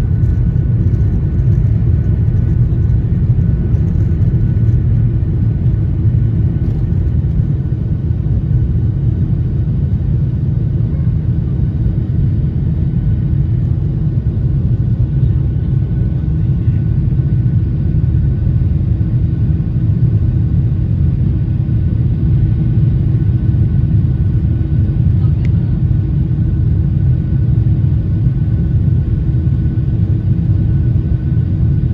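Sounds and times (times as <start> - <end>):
jet engine cabin rumble: 0.0 - 31.9.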